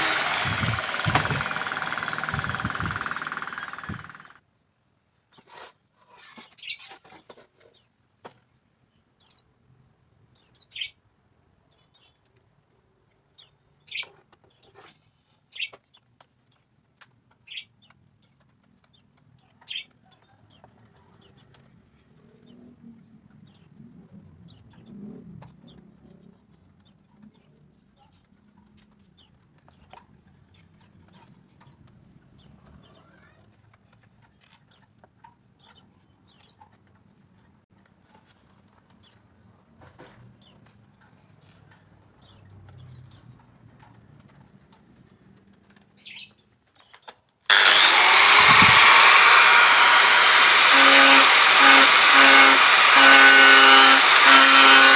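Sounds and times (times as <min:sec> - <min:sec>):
electric power tool running: 0:00.0 - 0:04.4, 0:47.5 - 0:54.9.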